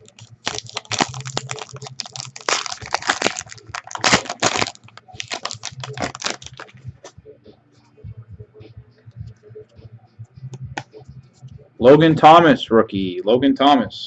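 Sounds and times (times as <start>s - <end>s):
plastic wrapper tearing and crinkling: 0.0s - 6.8s.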